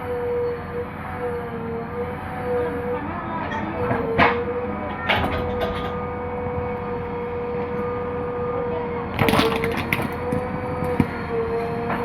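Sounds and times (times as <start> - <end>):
backhoe loader engine whine: 0.0 - 12.0
digging cracks and knocks: 9.2 - 11.2.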